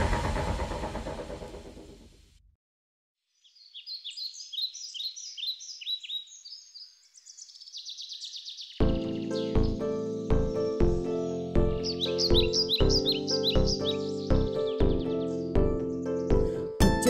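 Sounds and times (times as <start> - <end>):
birds chirping: 3.4 - 16.5.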